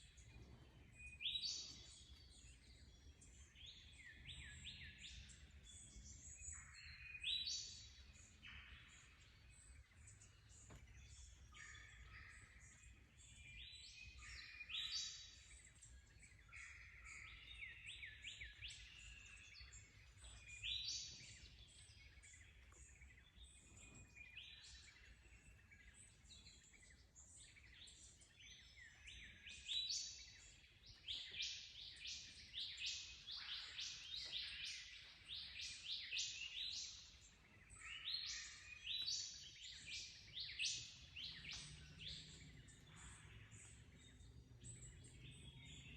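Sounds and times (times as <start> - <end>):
birds chirping and trilling: 0.0 - 45.9
faint low rumble: 41.4 - 45.9.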